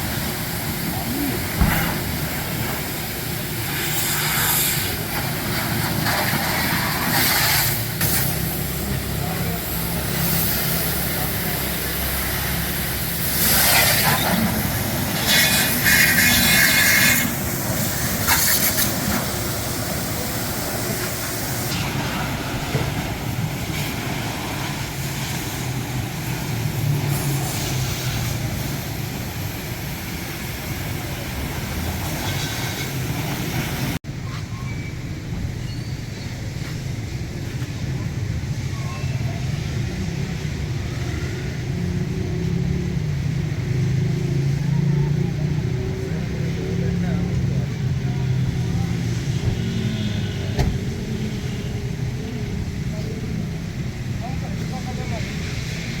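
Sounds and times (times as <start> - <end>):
hissing spray: 0.0 - 34.0.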